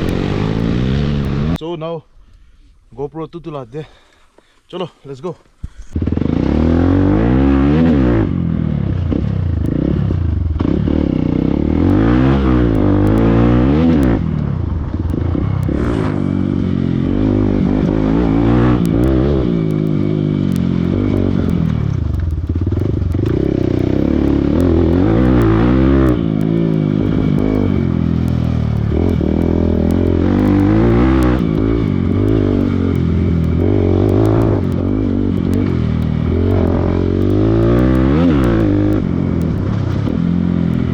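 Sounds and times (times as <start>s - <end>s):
motorcycle engine revving: 0.0s - 1.6s, 5.8s - 40.9s
motorcycle clattering on rough ground: 17.8s - 40.9s.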